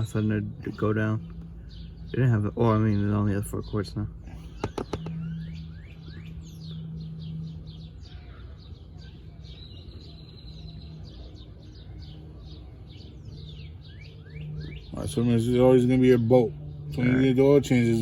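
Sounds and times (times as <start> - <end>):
small birds chirping: 0.0 - 18.0
steady low hum: 0.0 - 18.0
sharp clicks: 4.6 - 5.2.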